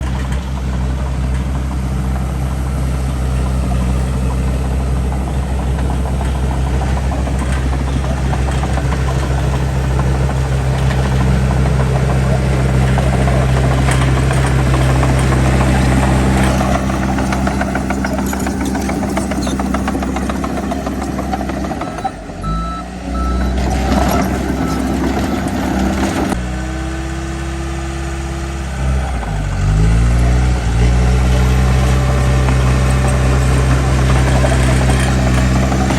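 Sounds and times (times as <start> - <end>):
heavy diesel machinery running: 0.0 - 35.9
backup alarm beeping: 21.8 - 25.5.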